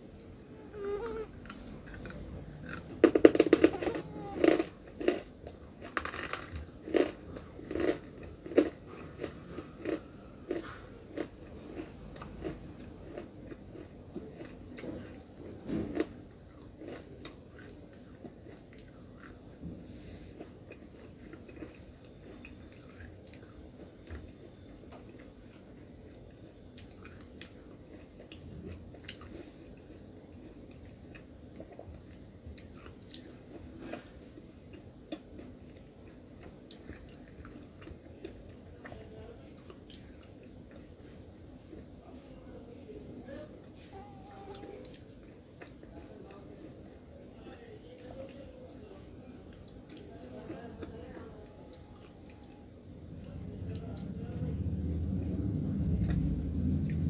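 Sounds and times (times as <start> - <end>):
person chewing with crunches: 0.0 - 47.1, 48.0 - 57.0
crunchy bite: 1.0 - 19.7.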